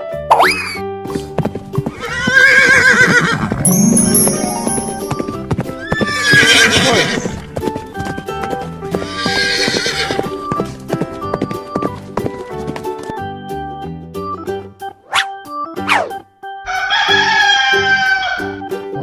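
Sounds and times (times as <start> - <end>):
light background music: 0.1 - 19.0
clip-clopping hoofbeats: 1.0 - 3.6, 5.1 - 13.4
horse whinnying: 1.9 - 3.6, 5.9 - 7.4, 9.0 - 10.2.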